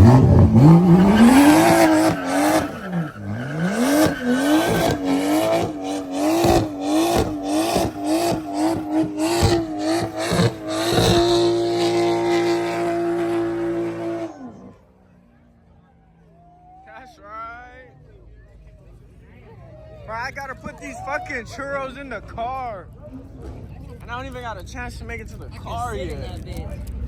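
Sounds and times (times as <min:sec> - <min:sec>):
car engine revving hard: 0:00.0 - 0:14.8
tire squeal: 0:00.0 - 0:14.8.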